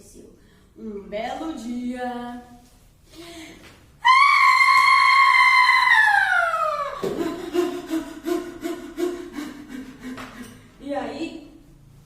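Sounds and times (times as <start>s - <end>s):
woman screaming: 4.0s - 8.0s.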